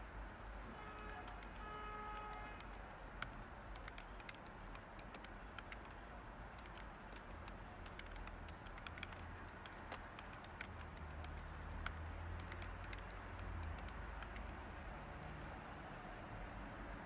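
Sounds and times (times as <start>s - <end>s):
computer keyboard typing: 0.9s - 14.7s.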